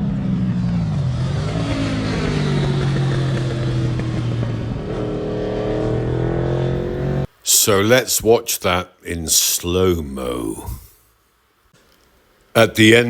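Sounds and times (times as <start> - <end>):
motorcycle passing at high revs: 0.0 - 7.3.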